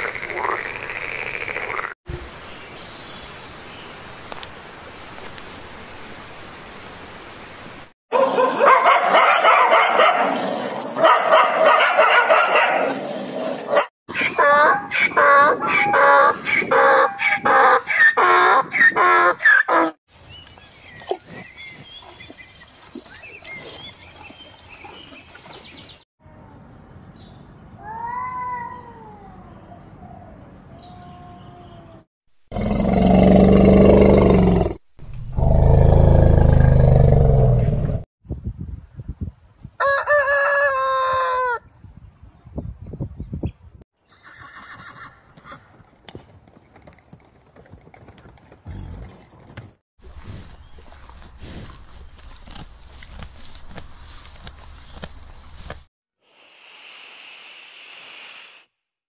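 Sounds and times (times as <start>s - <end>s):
cat meowing: 27.8s - 29.4s.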